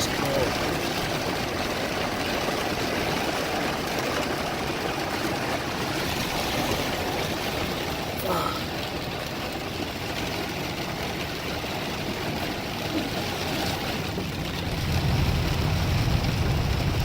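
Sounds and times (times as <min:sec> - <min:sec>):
rain rushing: 0:00.0 - 0:17.0
low rumble: 0:13.8 - 0:17.0
car driving noise: 0:14.1 - 0:17.0.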